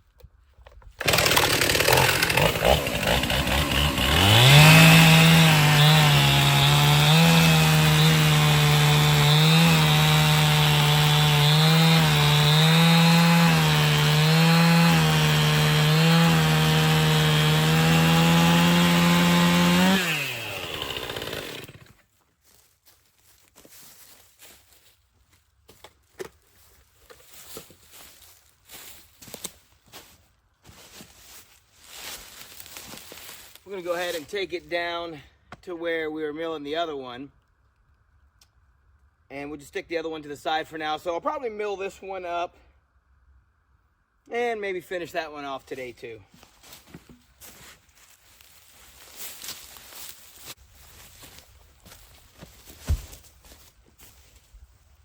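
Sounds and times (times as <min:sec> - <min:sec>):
chainsaw cutting log: 0:01.0 - 0:22.0.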